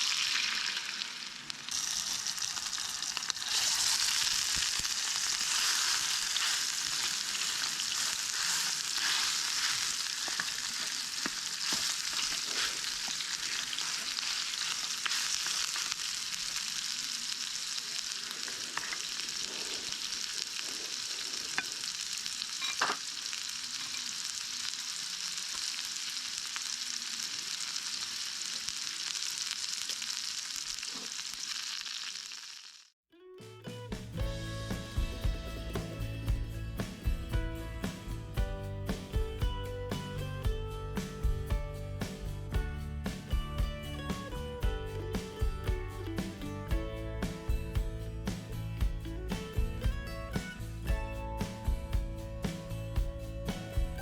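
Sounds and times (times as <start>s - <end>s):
food sizzling in hot pan: 0.0s - 33.0s.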